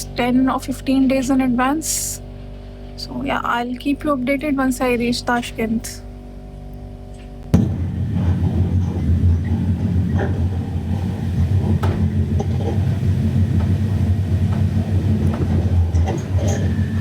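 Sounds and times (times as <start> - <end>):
clicks and knocks of rails: 7.2 - 17.0
train rumbling on rails: 7.5 - 17.0.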